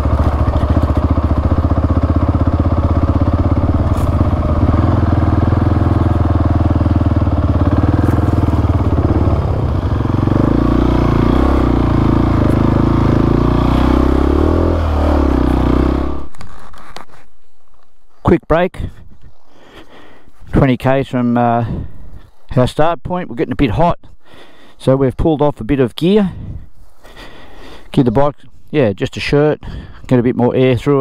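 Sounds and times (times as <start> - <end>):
motorcycle engine under load: 0.0 - 17.2.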